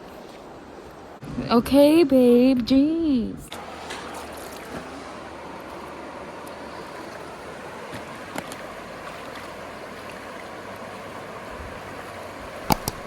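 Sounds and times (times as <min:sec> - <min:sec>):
stream water rushing: 0:03.5 - 0:13.0.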